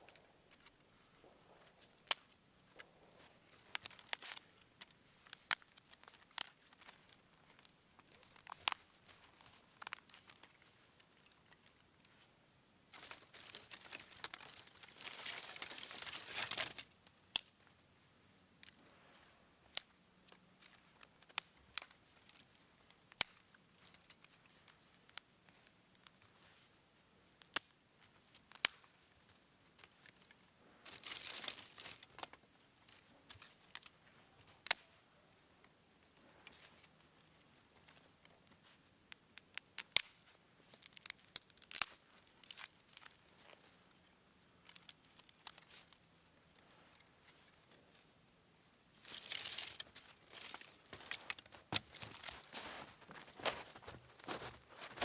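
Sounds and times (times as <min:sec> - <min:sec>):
material crinkling and rustling: 0:48.9 - 0:55.0.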